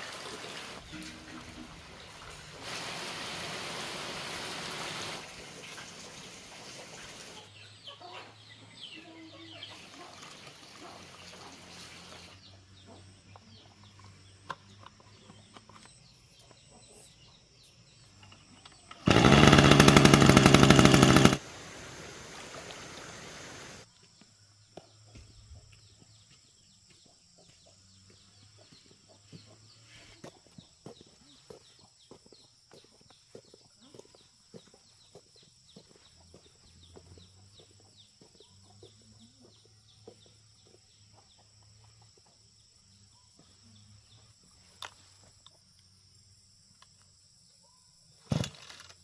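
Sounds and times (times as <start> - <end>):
birds chirping: 7.4 - 23.9
small gasoline engine running: 19.0 - 23.8.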